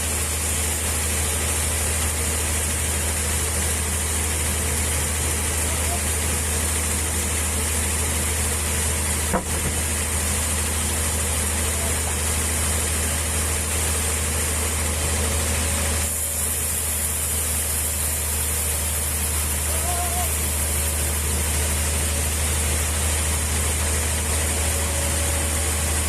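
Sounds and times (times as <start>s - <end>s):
engine humming: 0.0s - 26.0s
sharp knock: 9.3s - 9.8s.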